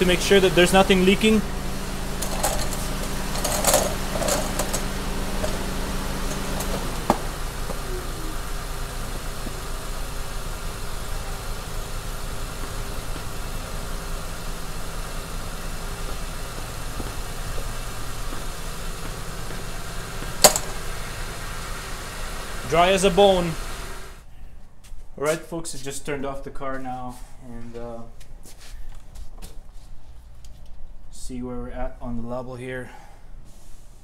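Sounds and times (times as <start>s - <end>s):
car engine idling: 0.0s - 24.3s.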